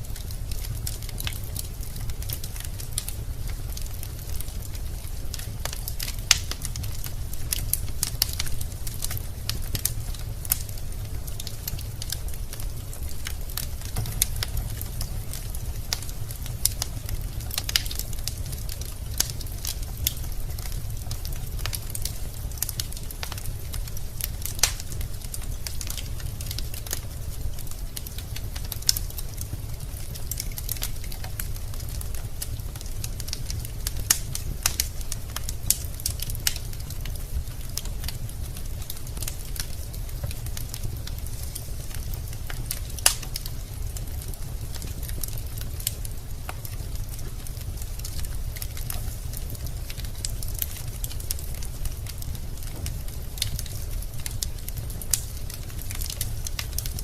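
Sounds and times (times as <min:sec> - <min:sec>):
logs crackling and popping: 0:00.0 - 0:57.0
low rumble of flames: 0:00.0 - 0:57.0.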